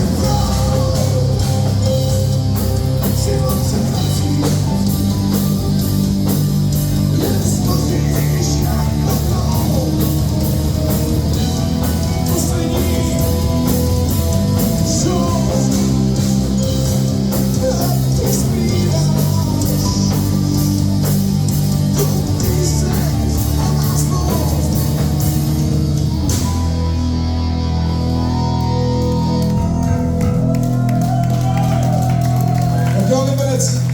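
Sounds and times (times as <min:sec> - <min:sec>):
person singing: 0:00.0 - 0:05.4, 0:07.0 - 0:11.0, 0:11.8 - 0:21.2, 0:21.9 - 0:25.2
drum kit with cymbal hits: 0:00.0 - 0:27.1
electric guitars: 0:00.0 - 0:33.9.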